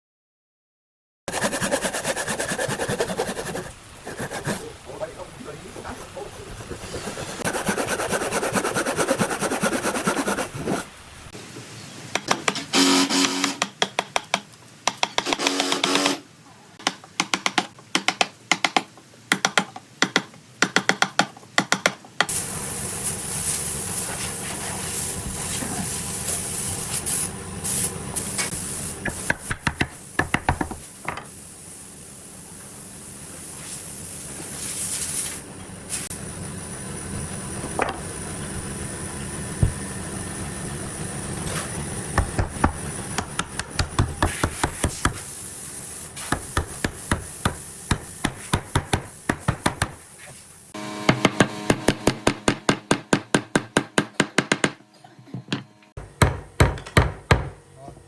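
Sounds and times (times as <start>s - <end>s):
steady hissing noise: 1.3s - 12.6s, 22.2s - 50.8s
quick hammer-like strikes: 51.0s - 54.8s.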